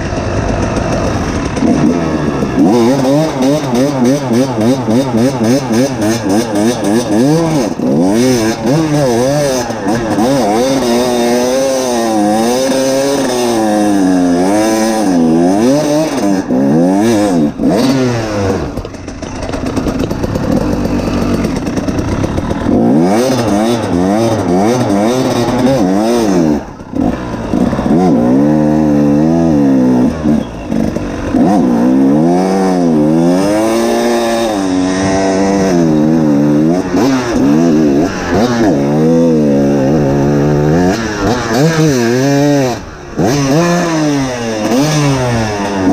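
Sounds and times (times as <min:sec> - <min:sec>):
two-stroke dirt bike engine revving: 0:00.0 - 0:45.9.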